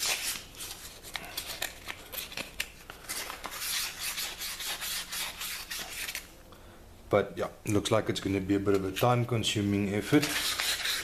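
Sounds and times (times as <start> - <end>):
sandpaper rubbing on metal: 10.0 - 11.0.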